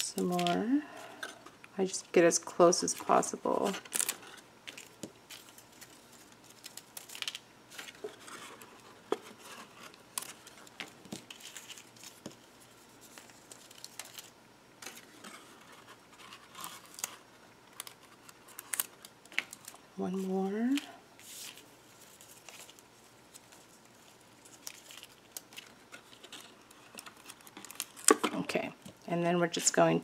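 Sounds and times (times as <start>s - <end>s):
paper rustling: 2.8s - 19.8s, 20.6s - 28.2s.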